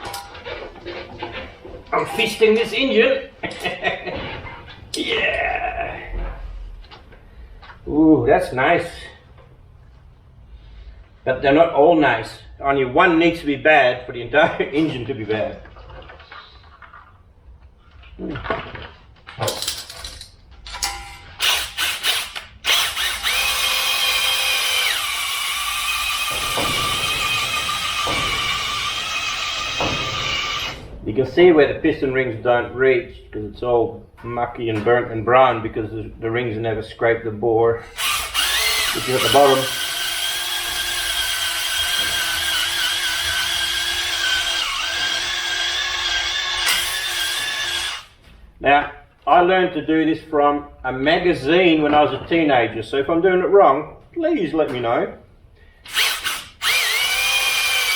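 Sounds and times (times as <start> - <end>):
tools clanking on engine block: 0.0 - 2.7, 18.5 - 21.4
electric drill whining: 21.4 - 30.8, 38.0 - 48.2, 55.8 - 57.9.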